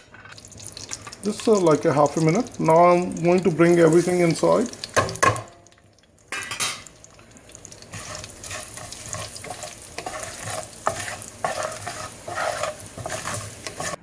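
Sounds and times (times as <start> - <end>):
spices sizzling in hot oil: 0.3 - 14.0
spoon scraping pan: 7.8 - 14.0.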